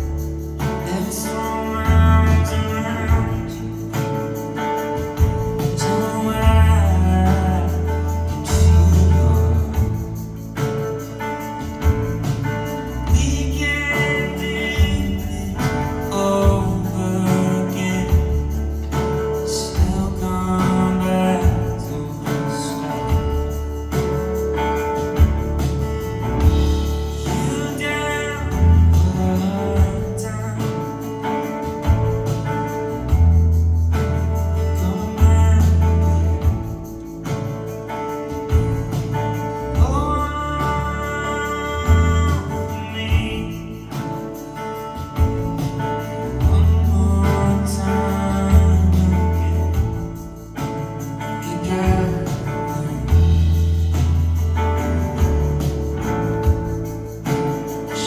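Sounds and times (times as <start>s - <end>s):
person singing: 13.0s - 23.2s, 27.1s - 31.3s, 39.7s - 44.2s, 46.4s - 50.2s
live band playing: 48.3s - 58.0s.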